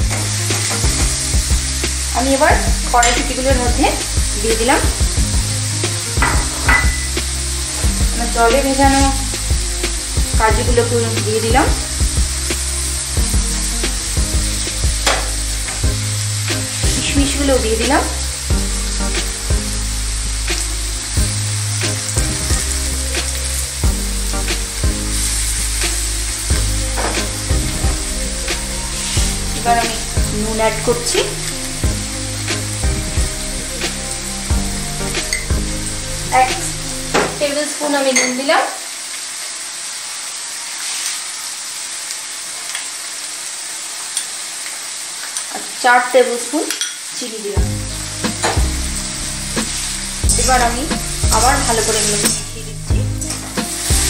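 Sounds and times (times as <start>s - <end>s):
vegetables sizzling in hot oil: 0.0s - 54.0s.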